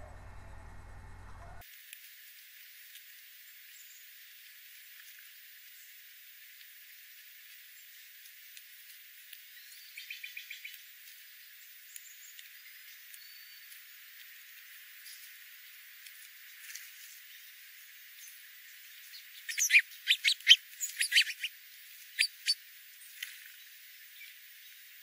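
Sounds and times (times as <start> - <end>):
steady high hiss: 1.6 - 25.0
faint ticks: 6.4 - 9.5
birds chirping: 17.2 - 24.4
whistled bird notes: 19.1 - 21.5, 22.1 - 22.6.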